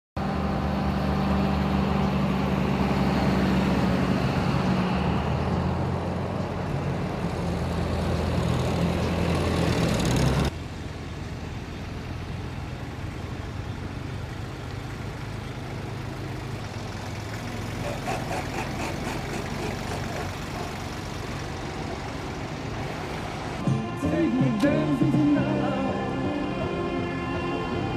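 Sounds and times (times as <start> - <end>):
tractor engines droning: 0.2 - 27.9.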